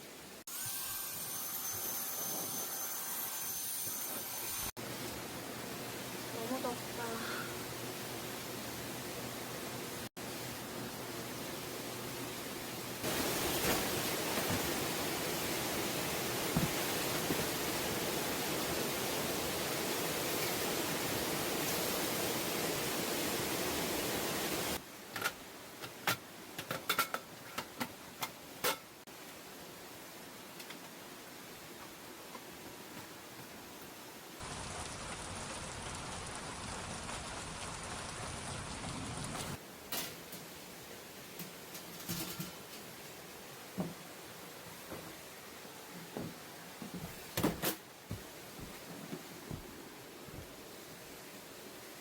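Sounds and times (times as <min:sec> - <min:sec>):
heavy rain: 0:12.3 - 0:24.8, 0:34.3 - 0:39.6.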